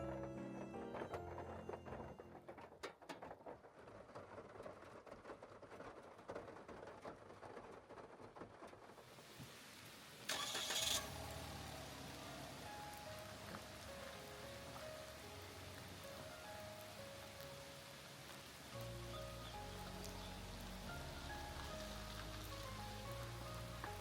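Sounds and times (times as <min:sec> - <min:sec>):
car engine starting and idling: 0:10.3 - 0:13.9.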